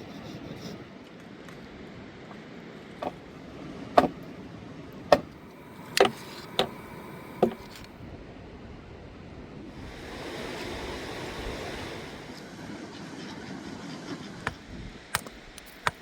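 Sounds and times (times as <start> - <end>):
axe chopping wood: 4.0 - 4.2, 5.1 - 5.4.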